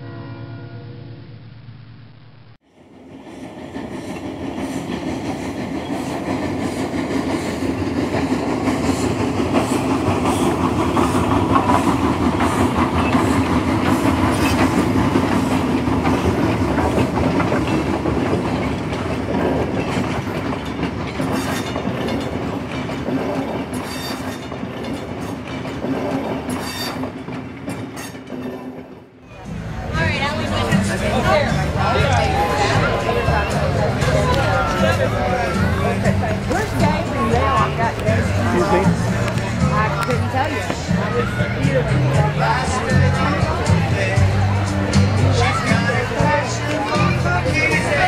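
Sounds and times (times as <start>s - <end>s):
train wheels clicking on rails: 2.7s - 48.0s.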